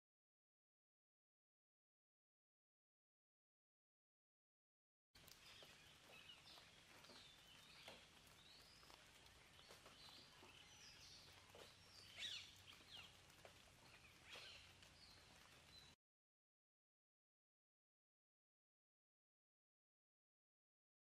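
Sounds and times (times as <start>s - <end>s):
faint birdsong: 5.2s - 16.0s.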